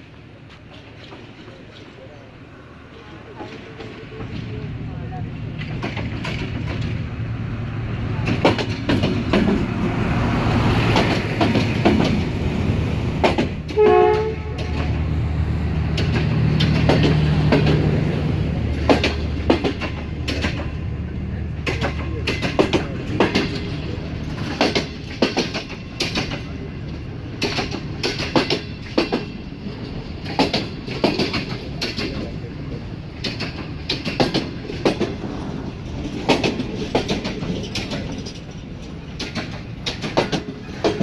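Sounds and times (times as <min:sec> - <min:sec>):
low locomotive engine drone: 0:00.0 - 0:41.0
wheels clicking over rail joints: 0:00.3 - 0:04.7, 0:05.5 - 0:07.2, 0:08.1 - 0:10.0, 0:10.8 - 0:12.4, 0:13.2 - 0:41.0
train horn toot: 0:13.7 - 0:14.8.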